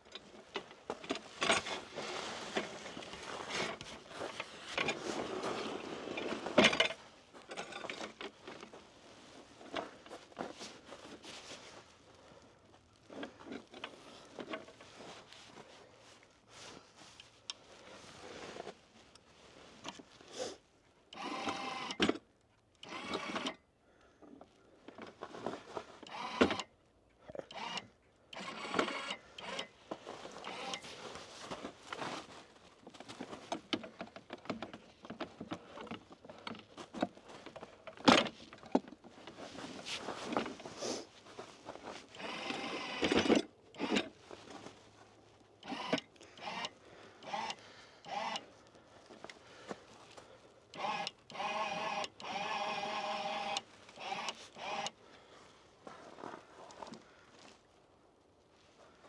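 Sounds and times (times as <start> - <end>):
small electric motor whirring: 26.1 - 26.7, 27.5 - 29.7, 30.4 - 30.8, 42.1 - 43.2, 45.6 - 48.5, 50.8 - 55.0
clicks and knocks of handling boxes: 29.6 - 46.7.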